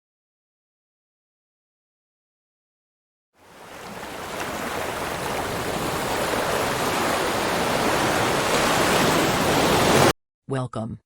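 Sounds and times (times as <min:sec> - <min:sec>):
rushing water: 0:03.4 - 0:10.1.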